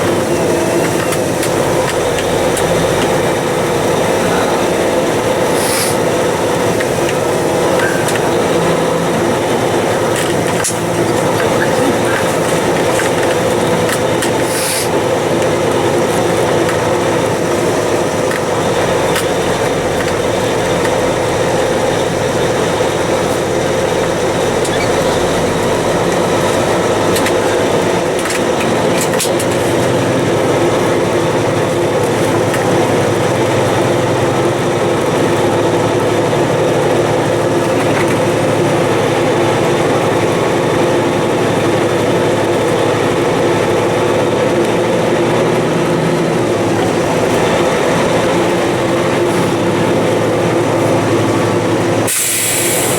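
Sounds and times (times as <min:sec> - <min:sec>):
truck diesel engine running: 0:00.0 - 0:52.9.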